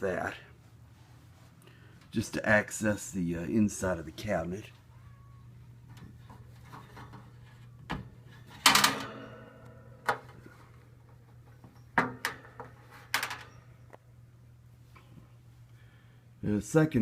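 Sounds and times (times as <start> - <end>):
fan knocks and clicks: 5.8 - 9.4, 10.0 - 13.4
loud metallic clank: 8.6 - 9.7.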